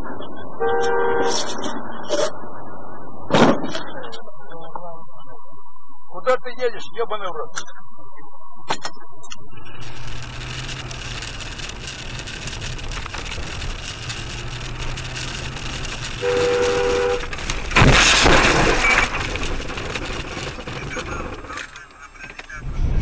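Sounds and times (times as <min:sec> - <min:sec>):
road noise inside vehicle: 0:09.7 - 0:22.8
low engine hum: 0:09.7 - 0:23.0
loud crash: 0:09.8 - 0:23.0
car horn blast: 0:15.9 - 0:19.3.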